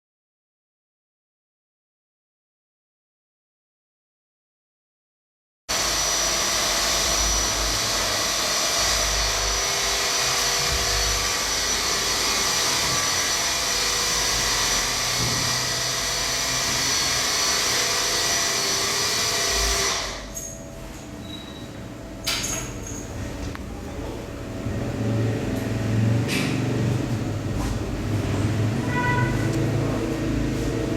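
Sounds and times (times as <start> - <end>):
motor-driven tool whining: 5.8 - 20.5.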